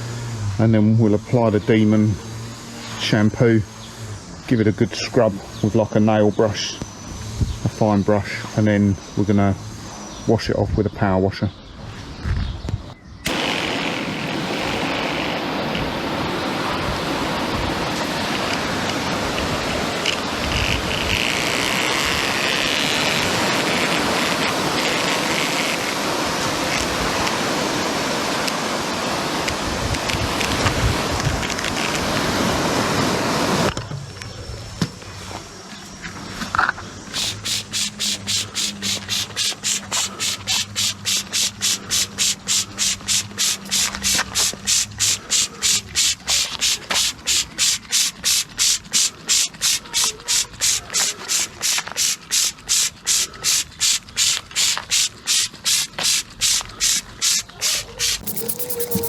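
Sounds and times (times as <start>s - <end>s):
rhythmic hissing strokes: 13.3s - 26.7s, 36.9s - 59.0s
hose water spraying onto carpet: 13.3s - 33.7s, 37.1s - 59.0s.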